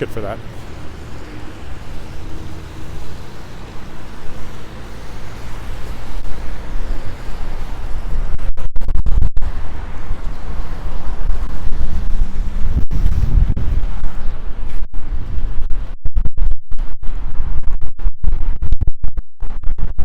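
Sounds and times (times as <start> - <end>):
street traffic passing: 0.0 - 8.5, 9.4 - 15.5
wind buffeting microphone: 0.0 - 20.0.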